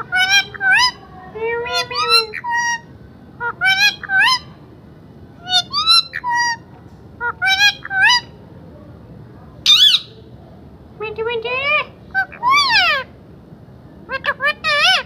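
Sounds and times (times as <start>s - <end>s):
parrot calling and screeching: 0.0s - 1.0s, 1.6s - 4.5s, 5.4s - 6.6s, 7.2s - 8.3s, 9.6s - 10.2s, 12.1s - 13.1s, 14.1s - 15.0s.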